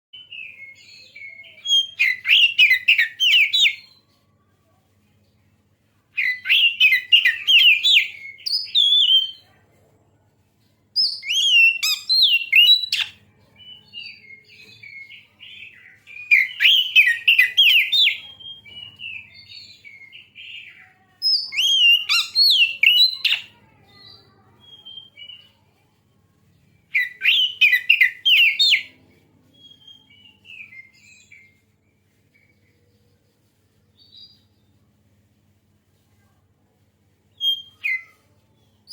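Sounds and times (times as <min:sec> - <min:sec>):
bird whistled song: 0:00.2 - 0:04.0, 0:06.2 - 0:09.4, 0:11.0 - 0:25.6, 0:26.9 - 0:28.9, 0:29.6 - 0:31.6, 0:37.3 - 0:38.2
soft scattered bird notes: 0:00.2 - 0:36.4.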